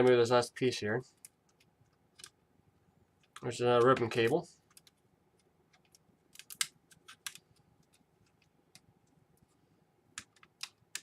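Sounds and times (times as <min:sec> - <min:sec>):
small parts clicking and tapping: 0:01.1 - 0:02.4, 0:03.2 - 0:09.5, 0:10.1 - 0:11.0.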